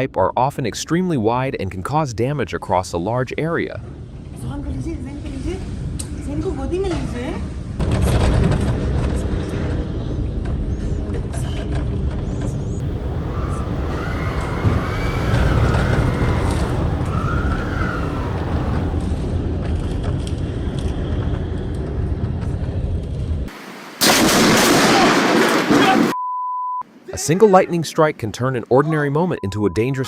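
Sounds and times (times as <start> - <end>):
strong wind buffeting microphone: 12.8 - 19.4.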